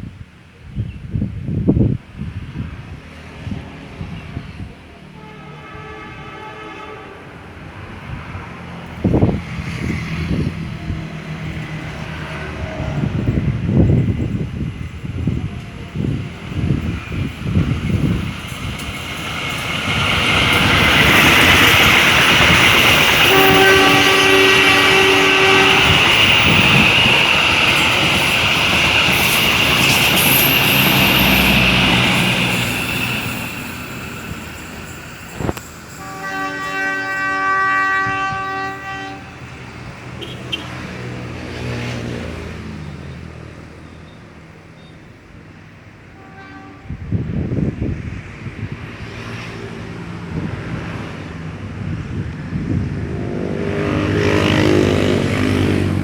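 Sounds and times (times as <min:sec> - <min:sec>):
passenger train rolling past: 0:00.0 - 0:56.0
train horn: 0:05.1 - 0:07.7, 0:20.3 - 0:27.5, 0:35.3 - 0:39.6, 0:40.2 - 0:41.0, 0:46.1 - 0:47.3, 0:53.1 - 0:56.0.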